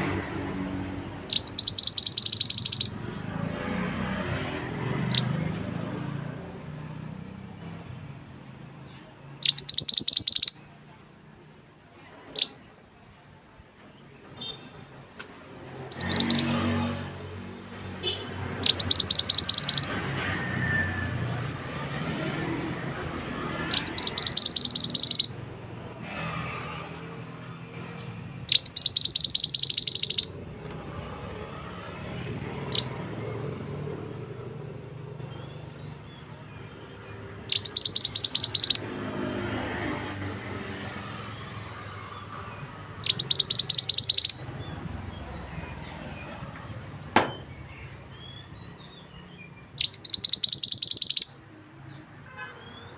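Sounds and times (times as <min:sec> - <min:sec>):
songbird trilling: 0:01.3 - 0:03.0, 0:05.0 - 0:05.4, 0:09.4 - 0:10.8, 0:15.9 - 0:16.7, 0:18.6 - 0:20.0, 0:23.4 - 0:25.4, 0:28.4 - 0:30.5, 0:32.6 - 0:33.0, 0:36.8 - 0:38.9, 0:42.9 - 0:45.4, 0:46.6 - 0:51.4
bird chirps: 0:01.3 - 0:03.1, 0:04.4 - 0:05.9, 0:08.8 - 0:10.8, 0:12.3 - 0:13.4, 0:15.7 - 0:17.1, 0:18.0 - 0:20.8, 0:21.7 - 0:25.4, 0:27.8 - 0:30.9, 0:32.6 - 0:39.3, 0:41.0 - 0:52.9.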